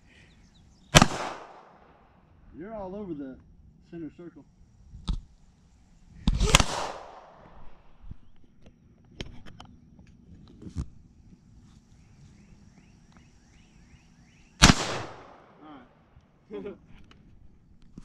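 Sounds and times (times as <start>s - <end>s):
loud gunshot with echo: 0.9s - 1.8s, 6.4s - 7.4s, 14.6s - 15.6s.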